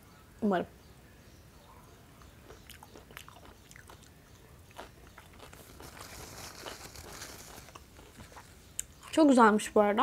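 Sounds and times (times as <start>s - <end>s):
chewing food: 2.1s - 9.4s
paper napkin rustling: 5.6s - 8.5s.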